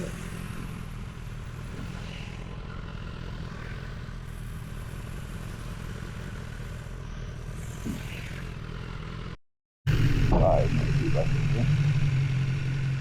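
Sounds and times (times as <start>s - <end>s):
road noise: 0.0s - 13.0s
vehicle engine drone: 0.0s - 13.0s.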